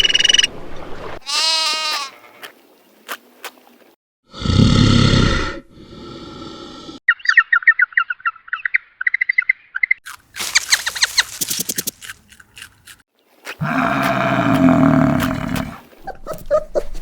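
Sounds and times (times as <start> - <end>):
rapid bird chirps: 7.1 - 12.0
sharp chirps and clicks: 10.1 - 13.0
animal calls: 13.6 - 16.8.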